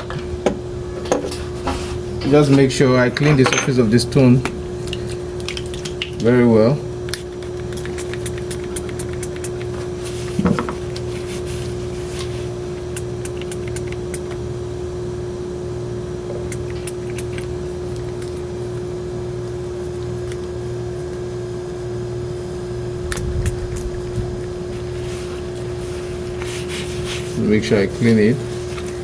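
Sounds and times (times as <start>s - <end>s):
mechanical hum: 0.0s - 29.0s.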